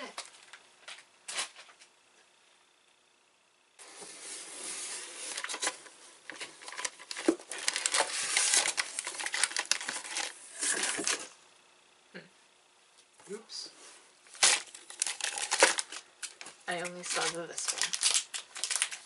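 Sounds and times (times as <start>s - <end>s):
plastic wrappers crinkling: 5.3s - 11.3s, 14.3s - 19.0s.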